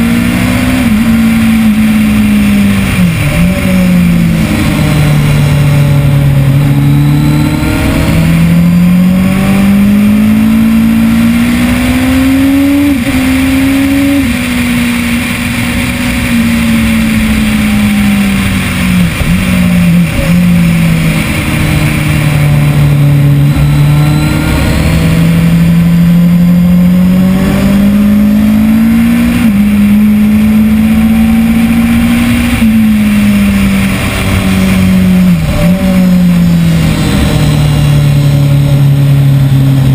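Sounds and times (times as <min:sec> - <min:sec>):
motorcycle engine accelerating: 0:00.0 - 0:39.9
wind rush: 0:00.2 - 0:08.6, 0:12.6 - 0:25.7.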